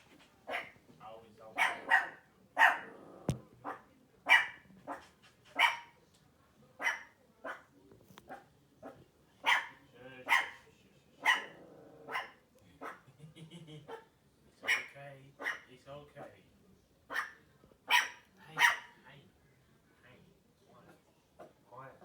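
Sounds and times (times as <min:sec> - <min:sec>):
dog barking: 0:00.5 - 0:00.8, 0:01.6 - 0:03.0, 0:03.6 - 0:06.0, 0:06.8 - 0:07.7, 0:08.3 - 0:10.6, 0:11.2 - 0:13.0, 0:13.9 - 0:15.7, 0:17.1 - 0:19.0.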